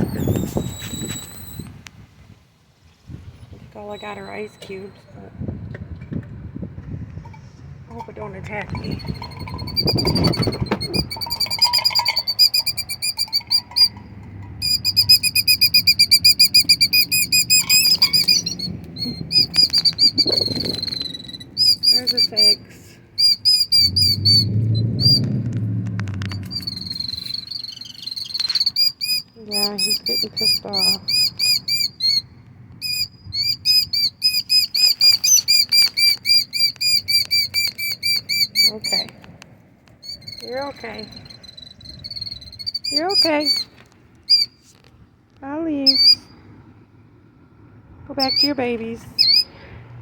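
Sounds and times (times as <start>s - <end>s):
bird alarm calls: 8.8s - 22.6s, 23.2s - 25.3s, 26.4s - 39.2s, 40.0s - 43.7s, 44.3s - 44.6s, 45.9s - 46.3s, 48.2s - 49.5s.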